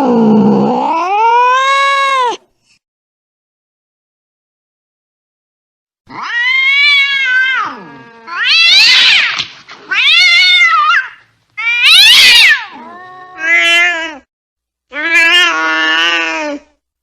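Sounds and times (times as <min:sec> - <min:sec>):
angry cat yowling: 0:00.0 - 0:02.4, 0:06.1 - 0:14.3, 0:14.9 - 0:16.8.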